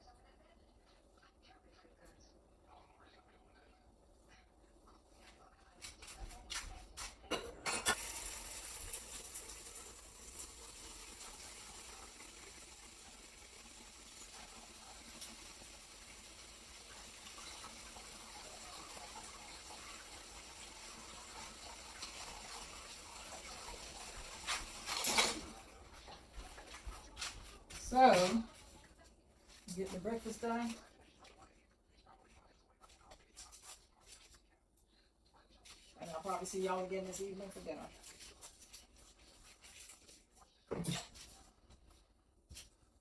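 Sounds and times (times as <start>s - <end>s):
tap water running into sink: 7.9s - 25.8s.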